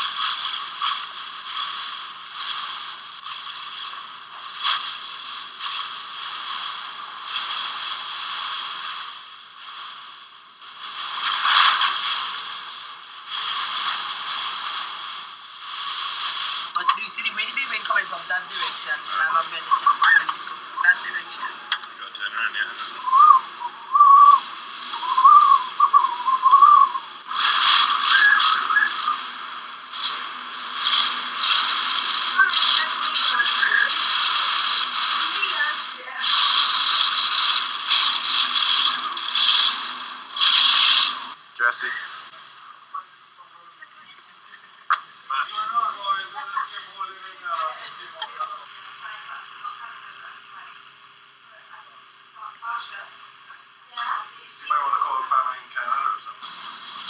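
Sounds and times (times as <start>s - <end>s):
hurricane wind whistling: 22.6s - 41.4s.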